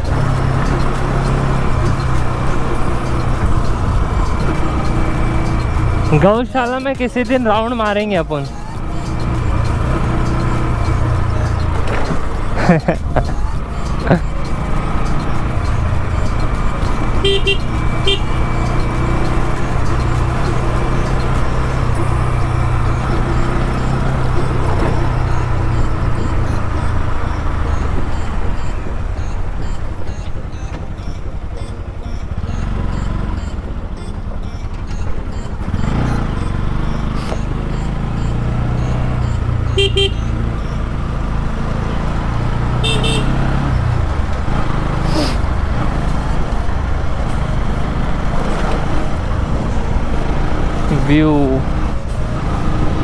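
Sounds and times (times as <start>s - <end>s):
motorcycle engine running: 0.0s - 53.0s
short horn toots: 39.7s - 40.4s, 42.8s - 43.5s.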